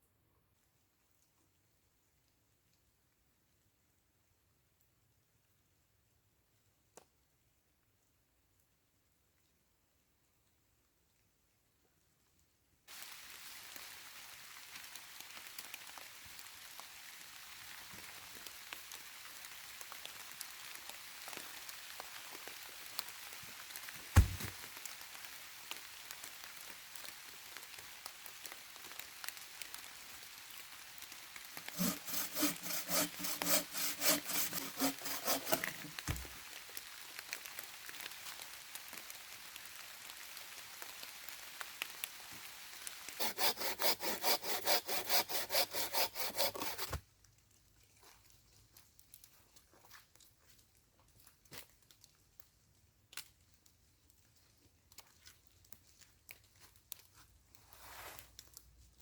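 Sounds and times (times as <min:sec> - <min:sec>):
hand saw cutting wood: 0:24.2 - 0:24.5, 0:31.6 - 0:36.4, 0:43.2 - 0:47.0
sharp knock: 0:24.2 - 0:24.5
faint patter with ticks: 0:47.4 - 0:59.0.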